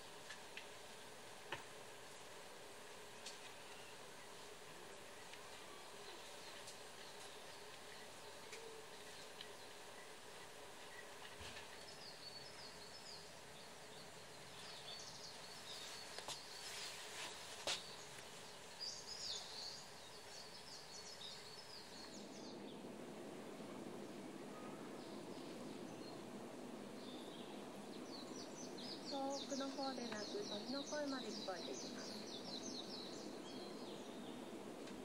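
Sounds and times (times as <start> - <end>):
outdoor background hiss: 0.0 - 35.0
songbirds chirping: 0.0 - 35.0.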